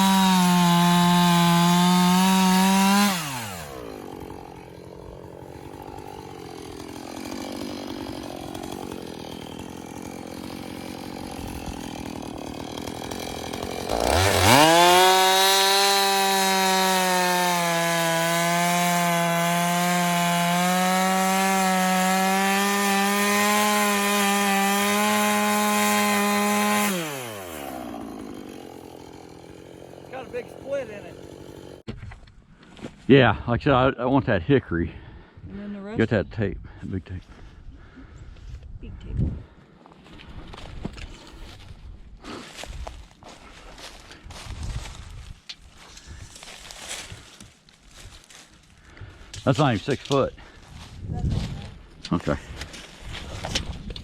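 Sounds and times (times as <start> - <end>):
chainsaw cutting a log: 0.0 - 32.0.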